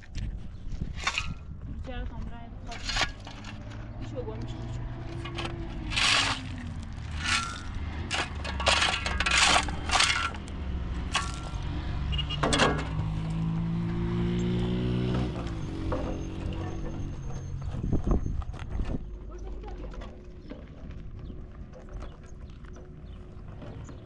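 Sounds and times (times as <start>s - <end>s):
hard objects clattering: 0.0s - 4.2s, 4.8s - 11.8s
low motor hum: 0.0s - 24.0s.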